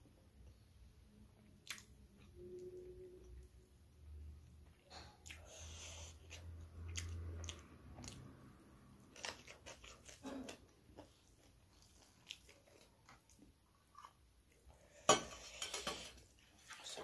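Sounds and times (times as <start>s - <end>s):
chewing and mouth sounds: 1.4s - 2.4s, 4.6s - 14.7s.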